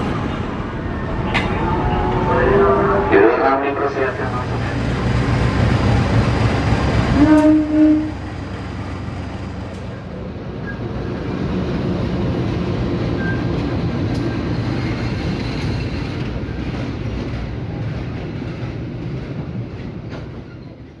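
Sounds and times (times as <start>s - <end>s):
locomotive engine drone: 0.0s - 15.7s.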